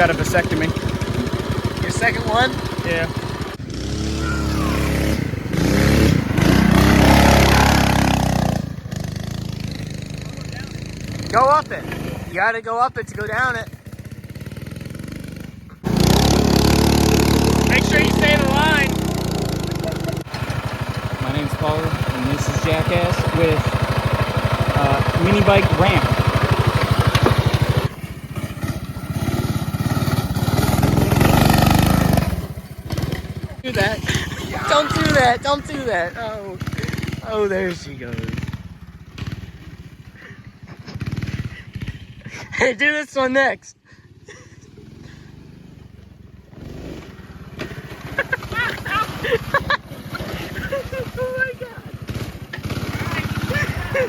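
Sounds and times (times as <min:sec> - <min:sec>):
small engine revving: 0:00.0 - 0:12.4, 0:13.1 - 0:42.7, 0:44.0 - 0:54.0.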